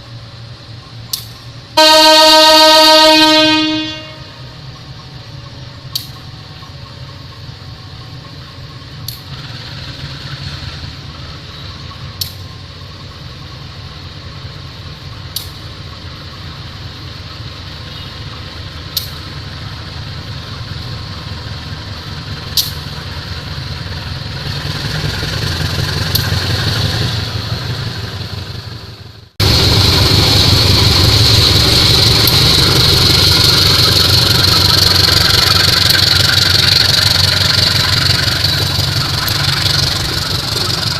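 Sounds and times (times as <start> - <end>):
heavy engine running: 0.0 - 40.9
rushing noise: 19.3 - 40.9.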